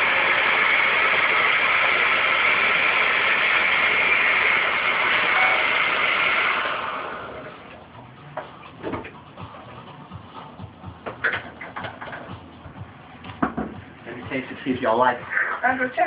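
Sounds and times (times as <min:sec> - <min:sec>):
electric blender motor running: 0:00.0 - 0:08.3.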